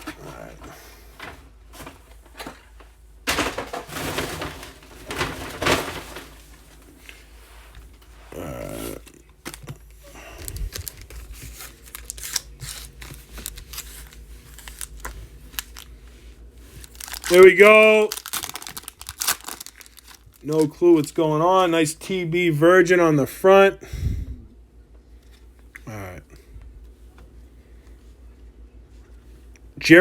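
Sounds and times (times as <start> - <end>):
foil packs crinkling and tearing: 8.3 - 16.0, 16.6 - 21.7.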